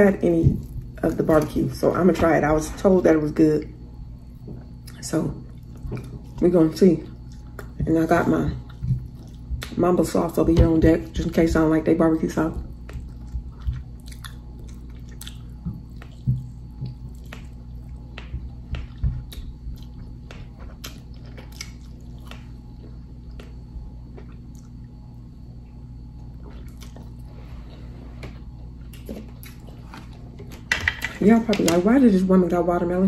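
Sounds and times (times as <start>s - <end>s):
steady low hum: 0.0s - 33.0s
chewing and mouth smacks: 7.1s - 7.8s, 8.6s - 9.8s, 12.7s - 25.0s, 26.2s - 27.3s, 28.8s - 30.7s.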